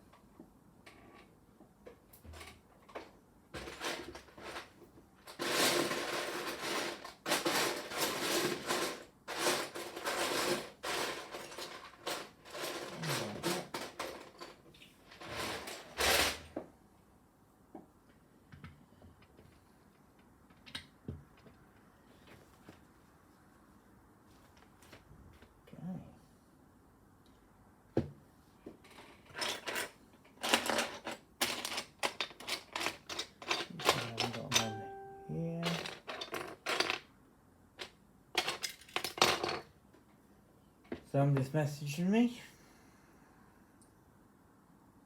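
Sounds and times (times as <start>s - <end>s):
lego bricks rattling: 3.0s - 16.3s, 28.9s - 34.6s, 35.6s - 37.1s.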